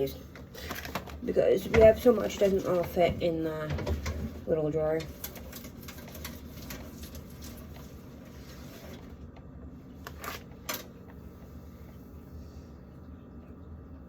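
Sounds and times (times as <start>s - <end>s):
food packages rustling: 5.0s - 9.2s.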